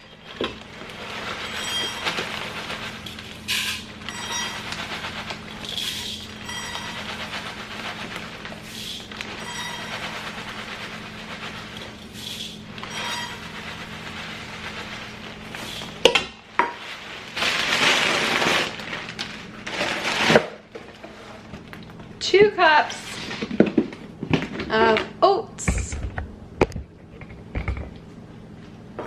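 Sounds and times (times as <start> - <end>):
cereal pouring and rustling: 0.0 - 21.6.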